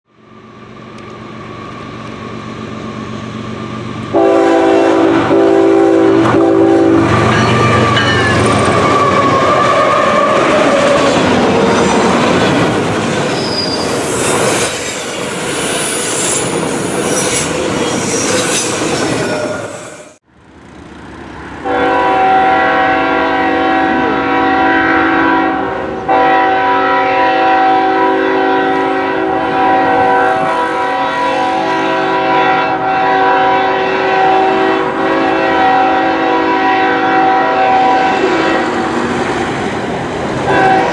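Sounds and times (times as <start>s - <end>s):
locomotive air horn chord: 4.1s - 8.0s, 21.6s - 38.8s, 40.5s - 40.9s
train wheels clattering and squealing: 7.0s - 20.2s.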